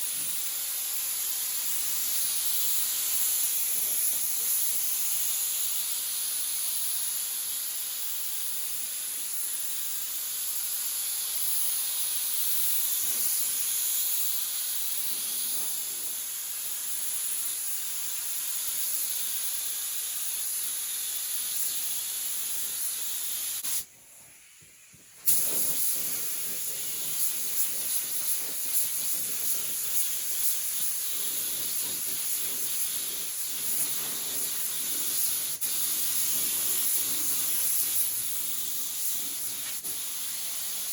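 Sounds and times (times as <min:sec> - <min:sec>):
paint spray gun hissing: 0:00.0 - 0:40.9.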